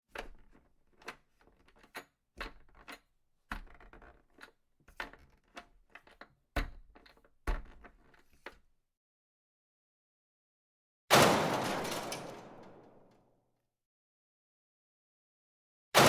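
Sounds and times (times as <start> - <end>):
sharp knocks and clicks: 0.1 - 8.6.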